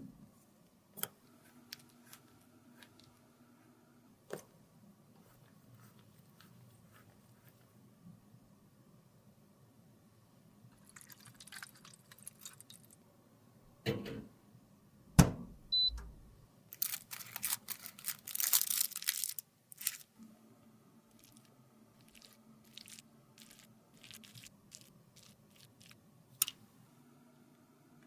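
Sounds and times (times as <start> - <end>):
makeup crunching and scraping: 16.8 - 20.1, 21.1 - 26.0.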